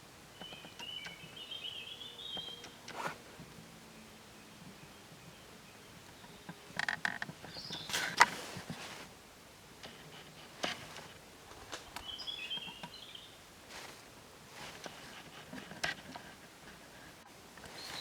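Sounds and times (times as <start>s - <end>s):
high bird chirps: 0.4s - 2.8s, 12.0s - 13.4s.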